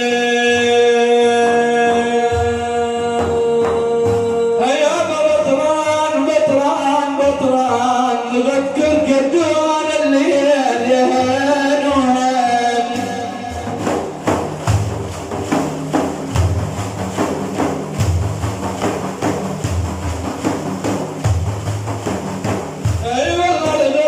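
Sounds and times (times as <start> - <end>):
man singing long note: 0.0 - 13.9
drum beats: 0.0 - 24.0.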